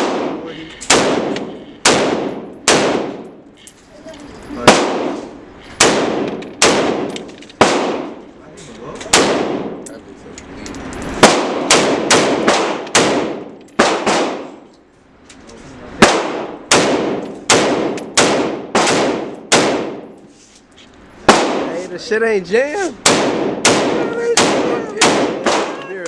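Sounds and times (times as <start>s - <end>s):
semi-automatic gunshots: 0.0s - 3.4s, 4.6s - 8.2s, 9.1s - 9.8s, 11.2s - 14.7s, 16.0s - 20.2s, 21.2s - 21.9s, 23.0s - 26.0s.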